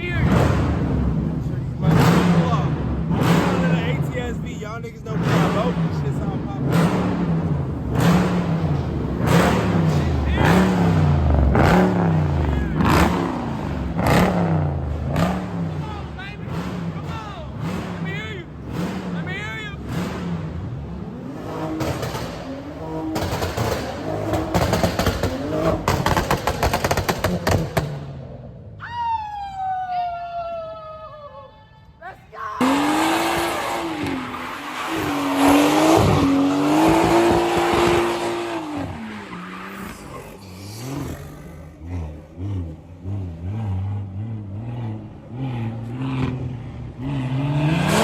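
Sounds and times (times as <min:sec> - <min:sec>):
car engine revving: 0:00.0 - 0:28.8, 0:32.6 - 0:48.0
exhaust pops and crackles: 0:21.6 - 0:28.3
high descending tone: 0:28.8 - 0:36.5.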